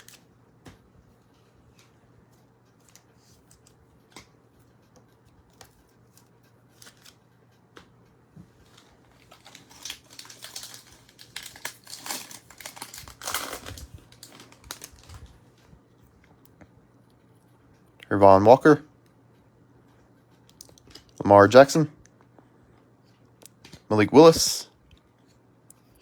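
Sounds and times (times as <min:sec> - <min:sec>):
foil wrapper tearing and crinkling: 0:00.0 - 0:00.2, 0:06.8 - 0:07.2, 0:09.2 - 0:15.3
cards clicking and rustling: 0:00.0 - 0:00.8, 0:02.7 - 0:07.2, 0:08.7 - 0:15.4.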